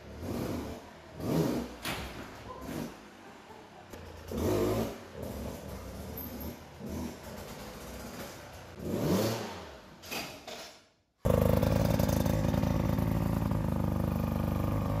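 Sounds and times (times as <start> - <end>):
dirt bike engine revving: 8.8 - 9.7, 11.3 - 15.0.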